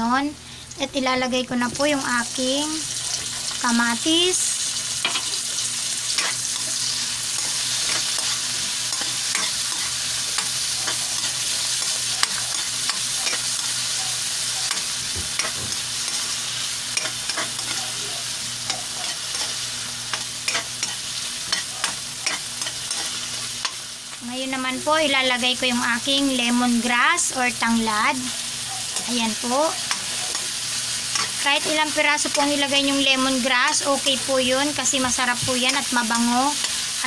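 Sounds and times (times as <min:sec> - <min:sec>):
vegetables sizzling in oil: 0:00.0 - 0:37.0
spatula scraping and tapping pan: 0:06.2 - 0:13.8, 0:14.6 - 0:16.3.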